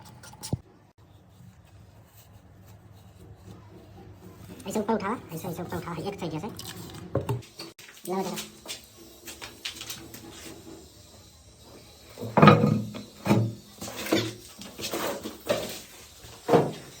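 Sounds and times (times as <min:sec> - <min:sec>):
knocks and clatters of plumbing fitting: 0:12.1 - 0:17.0.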